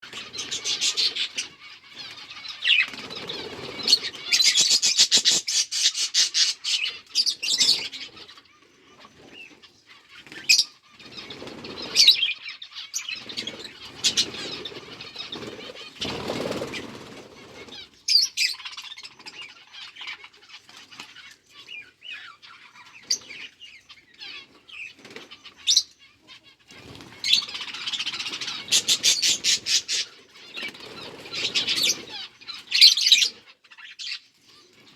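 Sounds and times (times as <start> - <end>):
budgies chirping: 0.0 - 34.9
rapid wing flapping: 13.3 - 17.8.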